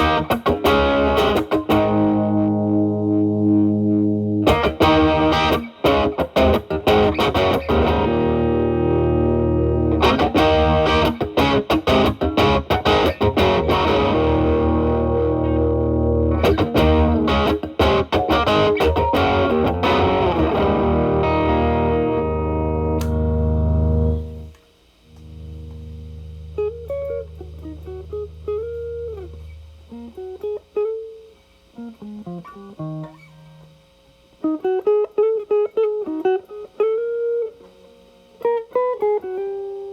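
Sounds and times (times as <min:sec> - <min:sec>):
clean electric guitar notes: 0:00.0 - 0:24.5, 0:25.1 - 0:30.6
distorted electric guitar chords: 0:00.0 - 0:31.0.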